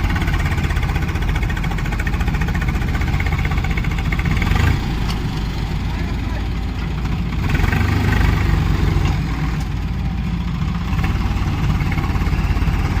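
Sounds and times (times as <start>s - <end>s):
tractor diesel engine throbbing: 0.0s - 13.0s.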